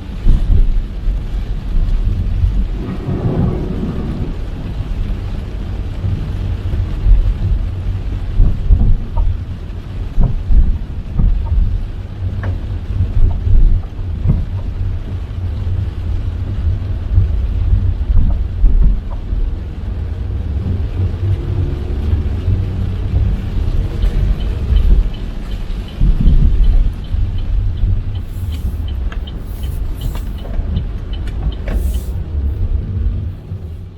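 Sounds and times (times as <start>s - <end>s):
rain hiss: 0.0s - 33.9s
raindrops tapping on car: 0.0s - 33.9s
road rumble of driving car: 0.0s - 33.9s
faint even ticking: 23.2s - 32.8s.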